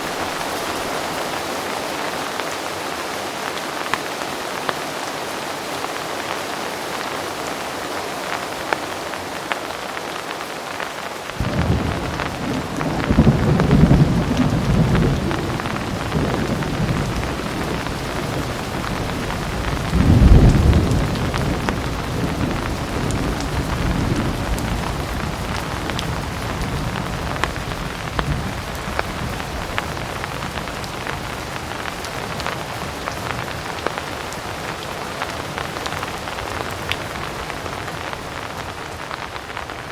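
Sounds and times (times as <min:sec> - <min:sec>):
heavy rain with ticking drops: 0:00.0 - 0:39.9
thunder rumble: 0:11.4 - 0:34.2.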